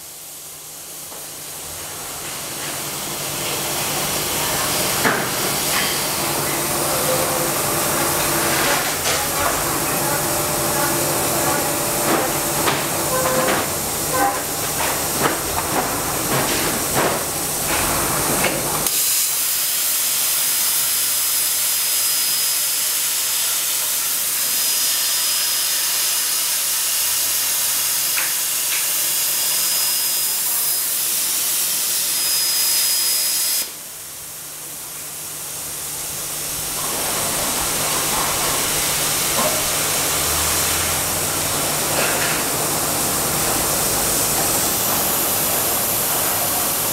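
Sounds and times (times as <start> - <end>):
plasma cutter torch hissing: 18.8 - 33.9.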